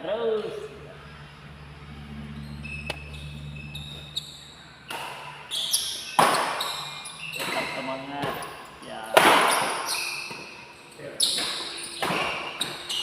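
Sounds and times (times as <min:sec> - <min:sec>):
shoe squeaks: 0:02.3 - 0:13.0
racket hitting shuttlecock: 0:04.8 - 0:10.7, 0:11.3 - 0:13.0.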